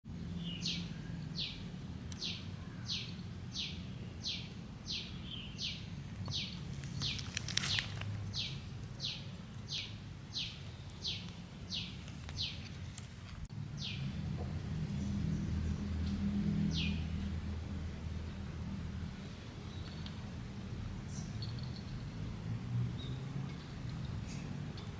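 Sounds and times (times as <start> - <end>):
low background hum: 0.1 - 22.4
rustling: 6.6 - 9.0.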